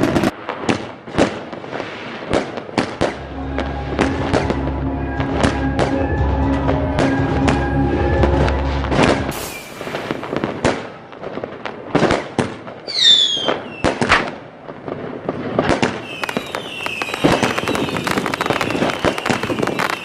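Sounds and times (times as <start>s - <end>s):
fireworks whistling: 0.0s - 0.3s, 1.6s - 11.0s, 12.8s - 14.2s, 16.0s - 20.0s
fireworks crackling: 0.0s - 6.0s, 8.9s - 20.0s
fireworks bangs: 0.0s - 6.1s, 7.0s - 20.0s.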